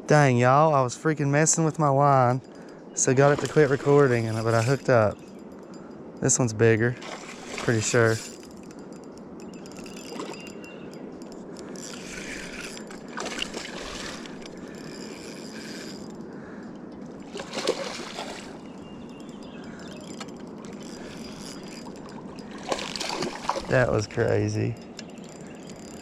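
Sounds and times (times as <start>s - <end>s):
river water running: 0.4s - 26.0s
water splashing: 7.0s - 8.4s, 11.9s - 15.8s, 17.2s - 18.7s, 21.0s - 24.6s.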